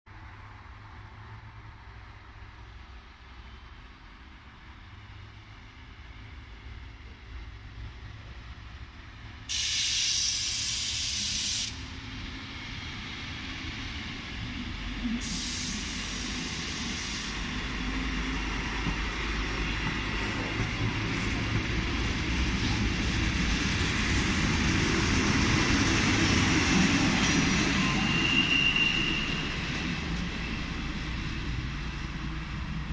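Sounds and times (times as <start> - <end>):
diesel railcar engine: 0.1 - 32.9
air hiss bursts: 9.5 - 11.9, 15.2 - 17.4
rail rumble: 11.2 - 32.9.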